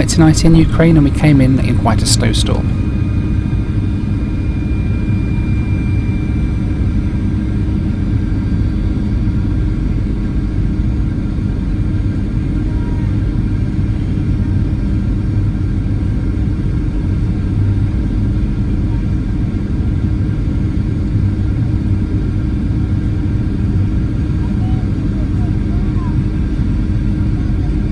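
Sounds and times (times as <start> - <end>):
airplane cabin engine rumble: 0.0 - 2.9
faint steady tones: 0.0 - 2.9.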